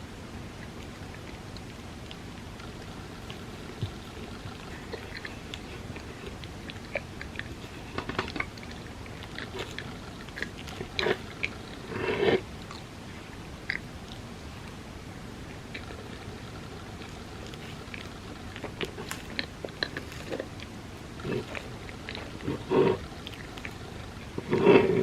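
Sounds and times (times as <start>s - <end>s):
steady hiss: 0.0s - 25.0s
wet chewing: 0.4s - 25.0s
mouth clicks and smacks: 13.6s - 14.3s.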